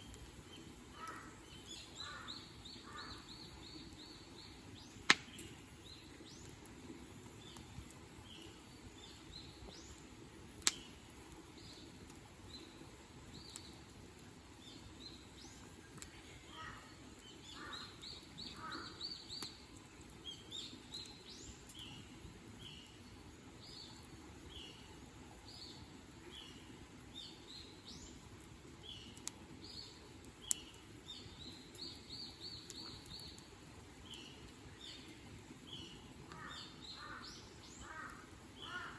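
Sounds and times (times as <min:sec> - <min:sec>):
small birds chirping: 0:00.0 - 0:38.9
sharp snaps: 0:05.0 - 0:05.5, 0:10.6 - 0:10.9.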